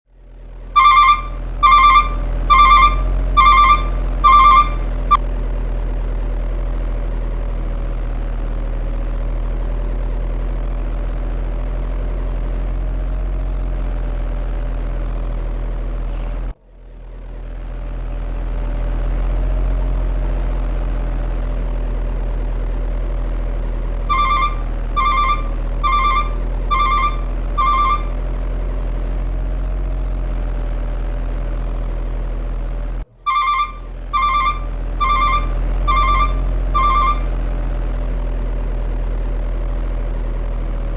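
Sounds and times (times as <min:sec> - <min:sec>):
engine-like machine drone: 0:00.1 - 0:40.9
electronic beeps: 0:00.8 - 0:05.2, 0:24.1 - 0:28.2, 0:33.3 - 0:37.4.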